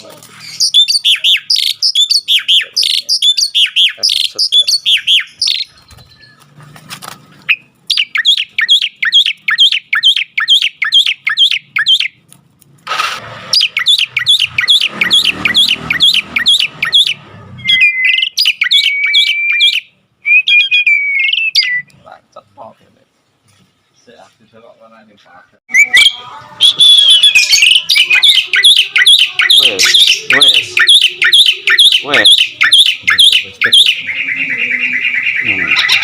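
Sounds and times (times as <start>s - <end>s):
starling chirping: 0.0s - 12.2s, 13.5s - 21.9s, 25.7s - 36.0s
bird whistled notes: 0.4s - 6.5s, 13.6s - 21.9s, 25.7s - 36.0s.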